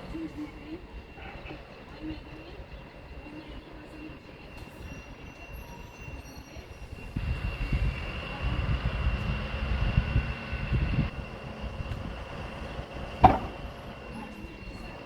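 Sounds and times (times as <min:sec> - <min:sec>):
train rumbling: 0:00.0 - 0:15.0
wheels clattering over rail joints: 0:06.6 - 0:15.0
high whine: 0:06.9 - 0:15.0.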